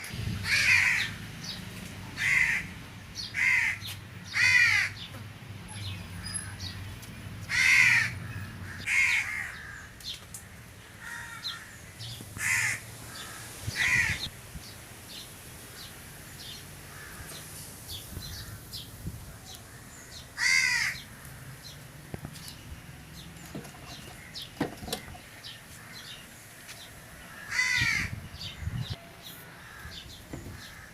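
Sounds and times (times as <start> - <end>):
small birds chirping: 13.1 - 30.9.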